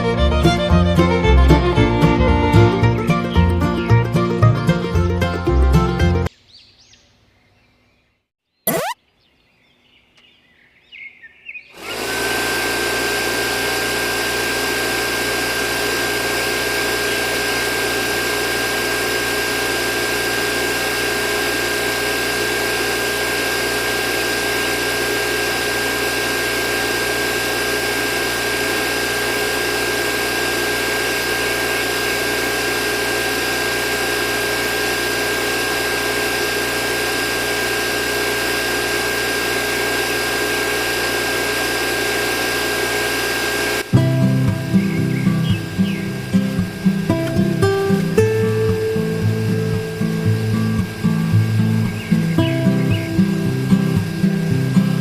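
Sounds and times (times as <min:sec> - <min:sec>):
small electric motor whining: 0:00.0 - 0:03.4, 0:08.7 - 0:09.0, 0:11.7 - 0:55.0.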